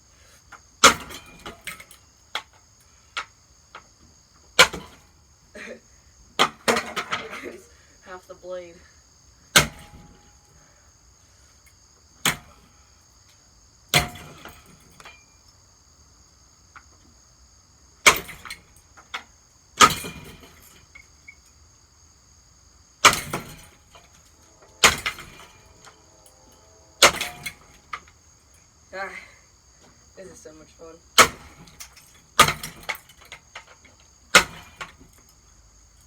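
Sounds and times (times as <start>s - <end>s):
insect trill: 0.0s - 36.0s
clatter of loose parts: 0.4s - 3.9s, 6.4s - 7.6s, 18.0s - 21.5s, 23.0s - 28.2s, 31.2s - 36.0s
hammer smashing ceiling fan: 0.8s - 1.8s, 9.6s - 10.3s, 13.9s - 15.2s, 18.0s - 18.8s, 19.8s - 20.8s, 23.0s - 28.1s, 31.2s - 35.2s.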